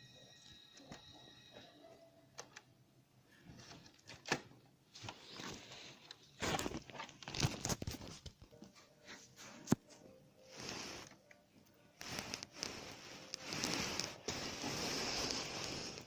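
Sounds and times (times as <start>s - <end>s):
plastic rustling: 4.9s - 8.8s, 11.9s - 16.0s.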